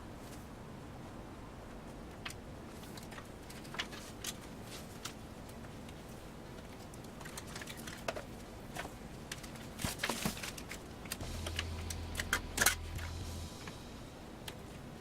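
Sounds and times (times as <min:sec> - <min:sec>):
low steady hum: 0:00.0 - 0:15.0
small hard parts clicking: 0:06.6 - 0:13.8.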